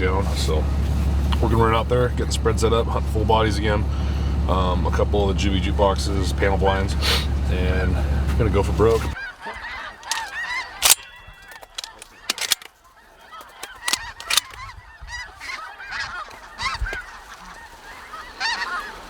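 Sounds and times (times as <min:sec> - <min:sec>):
geese honking: 0:00.0 - 0:19.0
sharp clicks: 0:10.0 - 0:12.7, 0:13.5 - 0:14.6.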